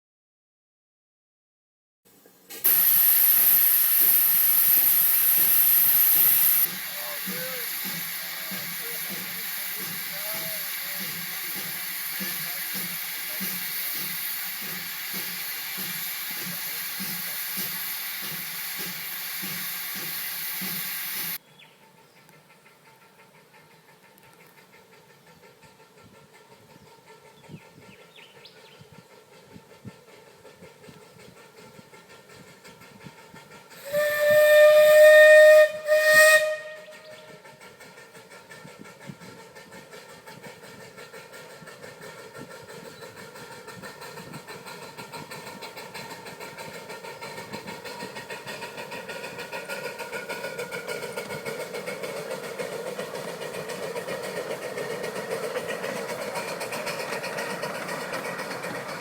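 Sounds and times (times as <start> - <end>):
steam hissing: 2.4 - 21.4, 22.5 - 59.0
steam locomotive whistle: 2.7 - 21.4, 33.8 - 37.4.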